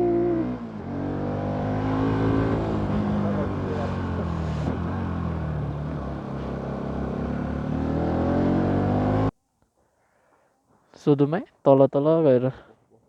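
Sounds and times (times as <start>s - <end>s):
motorcycle engine accelerating: 0.0s - 9.3s.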